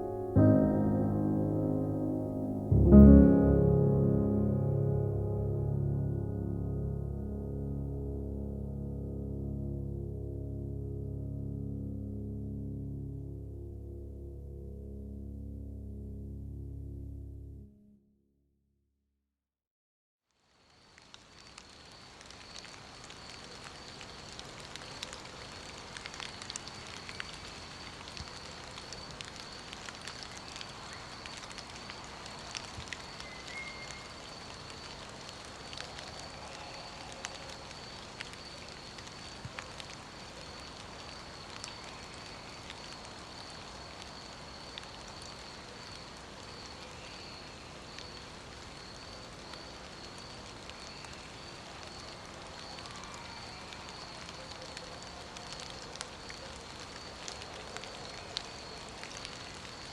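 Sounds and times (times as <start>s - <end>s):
rain hiss: 0.0s - 6.1s, 20.4s - 59.9s
sharp raindrop ticks: 20.4s - 59.9s.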